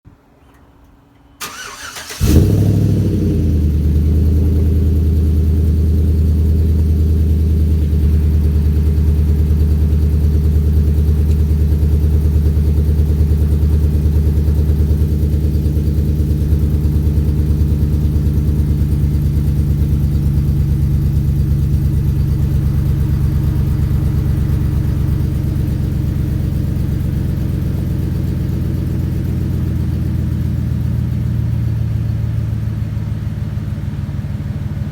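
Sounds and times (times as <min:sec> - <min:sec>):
engine cranking: 0:01.4 - 0:04.4
engine revving and idling: 0:01.4 - 0:34.9.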